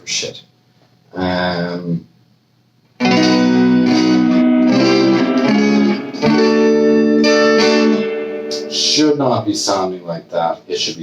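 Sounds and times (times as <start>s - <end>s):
electric guitar chords: 3.0s - 9.5s.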